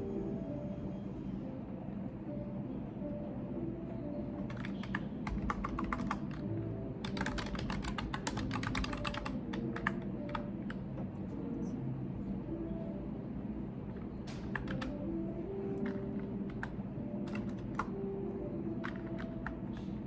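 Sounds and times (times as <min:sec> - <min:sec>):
typing on keyboard: 0:04.4 - 0:10.8, 0:14.3 - 0:15.1, 0:15.7 - 0:18.0, 0:18.8 - 0:20.0.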